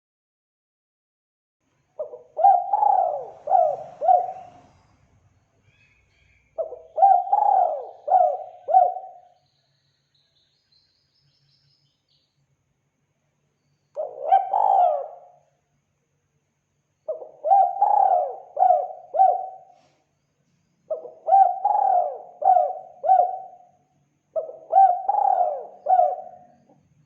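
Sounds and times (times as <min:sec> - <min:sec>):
dove cooing: 0:02.0 - 0:04.8, 0:06.6 - 0:09.3, 0:14.0 - 0:15.4, 0:17.1 - 0:19.7, 0:20.9 - 0:23.6, 0:24.4 - 0:26.8.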